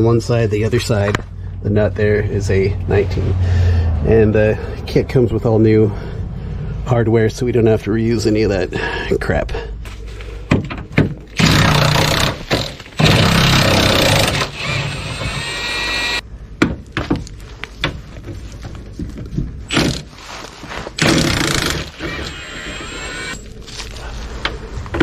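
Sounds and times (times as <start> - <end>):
power tool motor whine: 13.0 - 16.2, 21.0 - 23.4.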